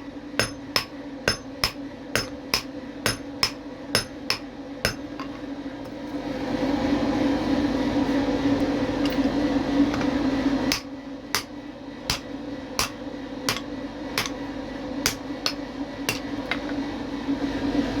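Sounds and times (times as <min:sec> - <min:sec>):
hammer tapping metal: 0:00.0 - 0:05.3, 0:10.7 - 0:11.5, 0:12.1 - 0:14.4, 0:15.1 - 0:16.3.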